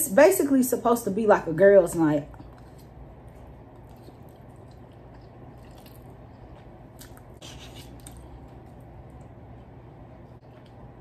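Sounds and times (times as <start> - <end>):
low steady hum: 0.0 - 11.0
wet chewing: 2.3 - 11.0.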